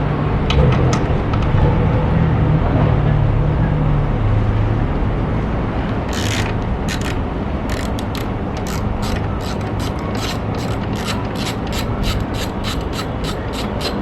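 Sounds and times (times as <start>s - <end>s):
low engine-like drone: 0.0s - 14.0s
ratchet wrench clicking: 6.1s - 14.0s.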